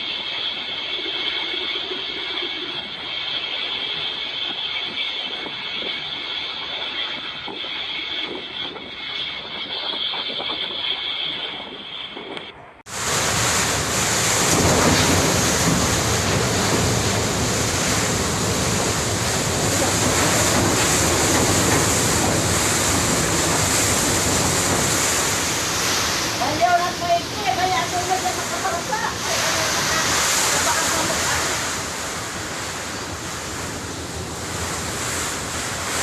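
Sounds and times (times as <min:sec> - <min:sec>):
typhoon wind: 0:00.0 - 0:36.0
wind buffeting microphone: 0:04.0 - 0:36.0
heavy rain: 0:12.9 - 0:36.0.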